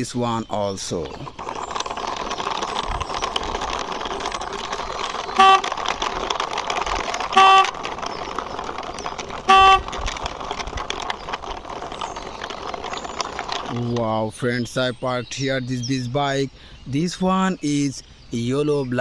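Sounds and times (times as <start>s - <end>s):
plastic toy wheels rolling: 0.0s - 15.2s
short horn beeps: 5.4s - 5.8s, 7.3s - 7.8s, 9.5s - 10.0s.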